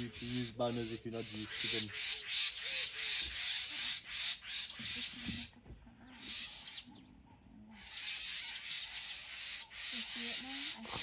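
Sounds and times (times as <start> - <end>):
faint low voices: 4.8 - 8.0.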